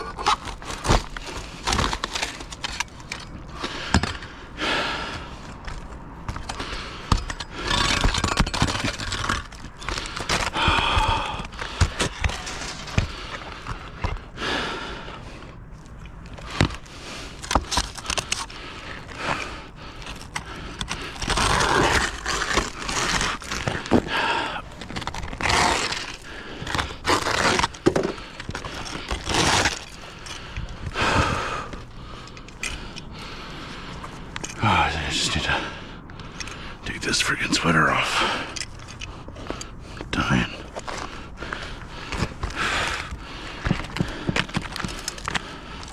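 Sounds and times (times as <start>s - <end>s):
scraping on roof: 16.4s - 30.2s.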